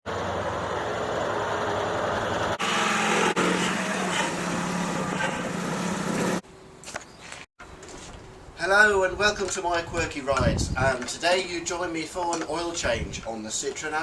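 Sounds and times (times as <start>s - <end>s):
small engine running: 0.1s - 6.4s.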